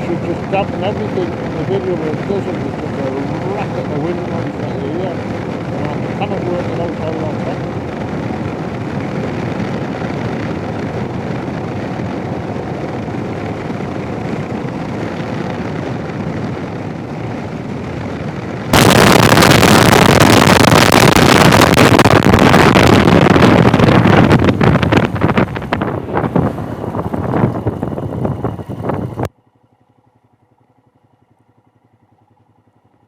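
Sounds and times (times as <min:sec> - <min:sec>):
wind roar on microphone: 0:00.0 - 0:29.3
motorcycle ride noise: 0:00.0 - 0:33.0.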